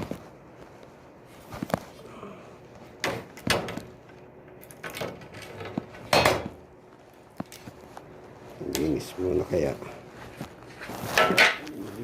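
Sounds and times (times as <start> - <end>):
hard parts knocking and rattling: 3.0 - 6.6, 11.2 - 11.7.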